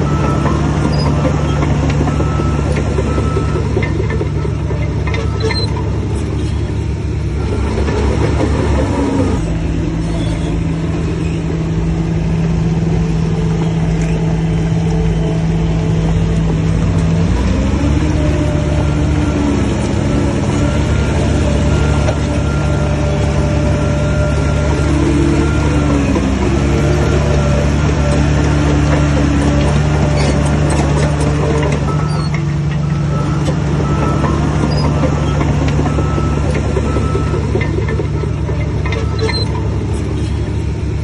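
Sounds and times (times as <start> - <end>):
heavy diesel engine running: 0.0 - 41.0.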